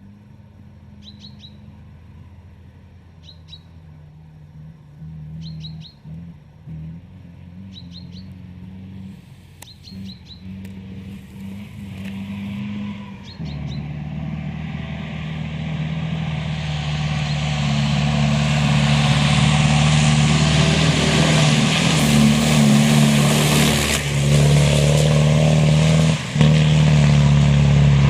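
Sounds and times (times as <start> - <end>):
car engine running: 0.0 - 14.3
road and tyre noise: 0.0 - 28.0.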